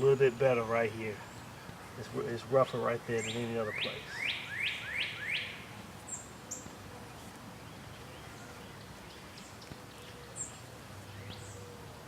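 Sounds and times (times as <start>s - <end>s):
high bird chirps: 3.2s - 6.7s.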